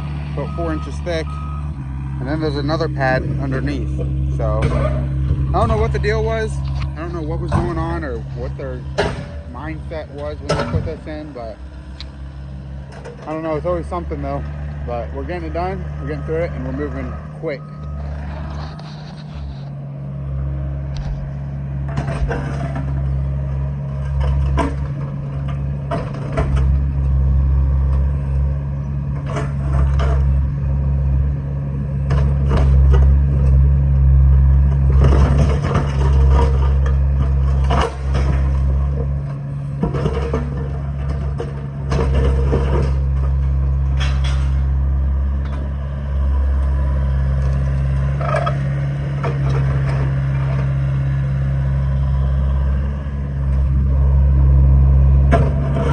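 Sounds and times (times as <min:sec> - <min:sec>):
digging machine engine droning: 0:00.0 - 0:55.9
concrete cracking and scraping: 0:17.9 - 0:19.8, 0:20.9 - 0:23.3, 0:34.6 - 0:55.9.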